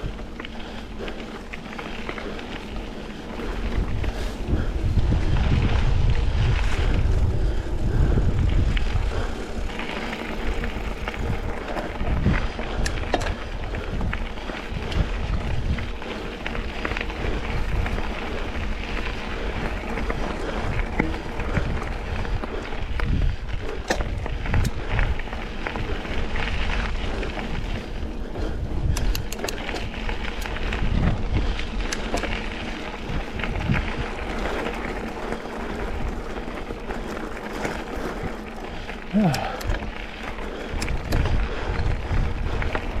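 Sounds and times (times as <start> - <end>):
bike clicks and rattles: 0.0 - 43.0
bike tyres rumbling on dirt: 0.0 - 43.0
wind buffeting microphone: 0.0 - 43.0.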